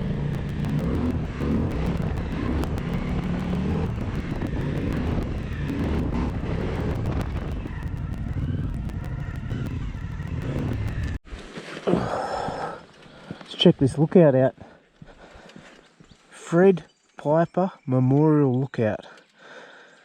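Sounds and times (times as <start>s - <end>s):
motorcycle engine running: 0.0s - 11.2s
road noise: 0.0s - 11.2s
wind noise: 0.0s - 11.2s.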